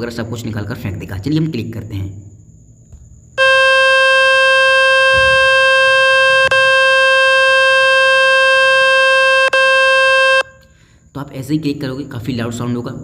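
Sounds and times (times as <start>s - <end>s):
phone speaker buzzy tone: 3.4s - 10.7s.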